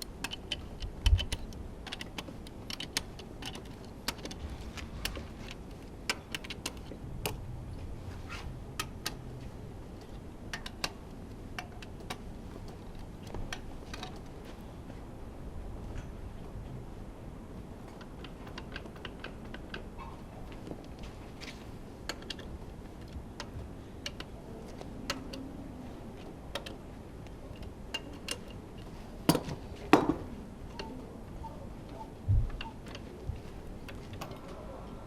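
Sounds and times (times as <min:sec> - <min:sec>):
hand tools clicking and tapping: 0:00.0 - 0:07.4, 0:08.8 - 0:14.6, 0:17.8 - 0:25.5, 0:26.1 - 0:31.0.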